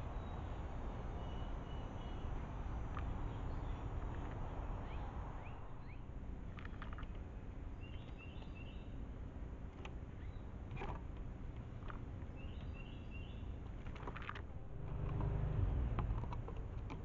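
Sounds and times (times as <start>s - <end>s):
birds chirping: 1.2s - 7.1s, 7.8s - 9.0s, 12.3s - 13.6s
steady low rumble: 14.4s - 16.9s.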